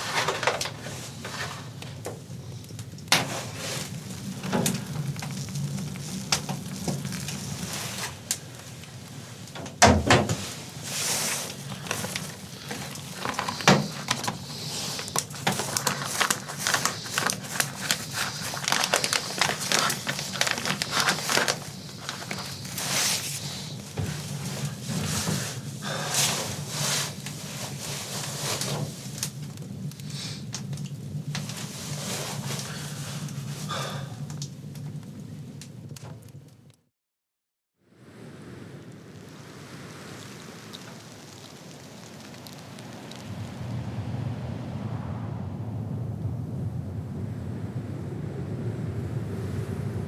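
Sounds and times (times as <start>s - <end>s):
rustling and crackling of handling: 0.0s - 36.7s.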